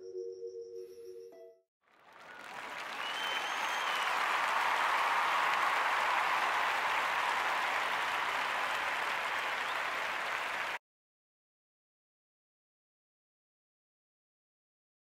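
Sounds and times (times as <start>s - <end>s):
audience applauding: 1.9s - 10.8s.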